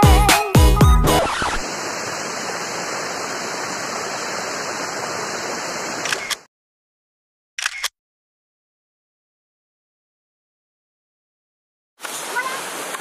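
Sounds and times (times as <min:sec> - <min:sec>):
rushing river water: 0:01.1 - 0:06.4, 0:12.0 - 0:13.0.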